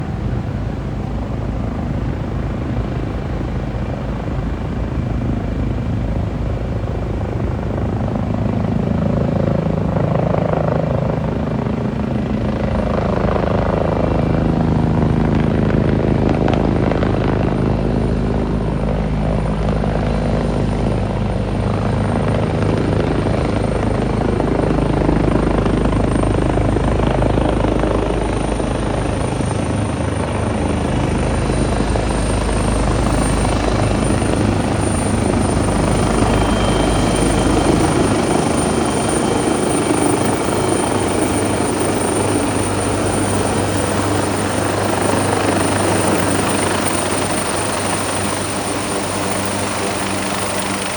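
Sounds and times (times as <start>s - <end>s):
helicopter rotor and engine: 0.0s - 50.9s
thin high whine: 30.7s - 50.9s.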